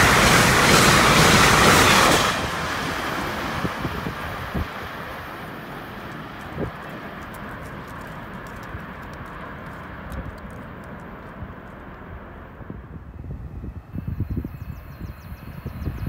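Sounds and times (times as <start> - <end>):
passenger train rumble: 0.0 - 16.0
light clicks: 6.0 - 12.0.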